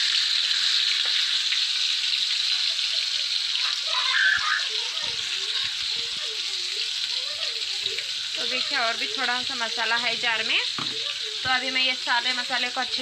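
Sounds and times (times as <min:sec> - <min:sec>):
paste sizzling in hot oil: 0:00.0 - 0:13.0
knock: 0:10.8 - 0:11.0.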